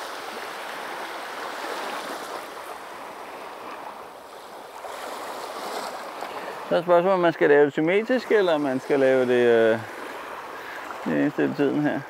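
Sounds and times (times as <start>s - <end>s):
small waves washing over beach stones: 0.0s - 6.7s.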